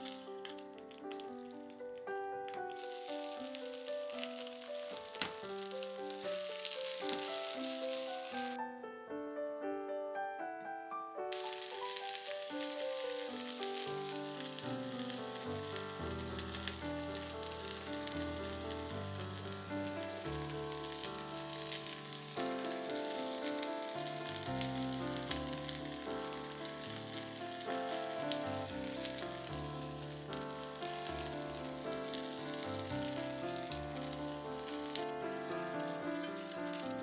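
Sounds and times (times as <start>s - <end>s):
pancakes sizzling in oil: 0.0s - 8.6s, 11.3s - 37.0s
piano background music: 0.0s - 37.0s.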